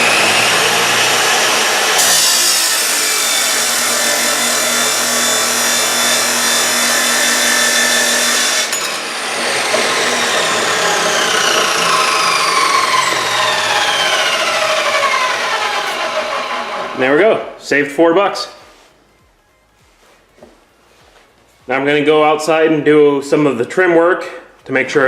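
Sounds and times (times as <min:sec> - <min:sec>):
power saw cutting steel rod: 0:00.0 - 0:17.3.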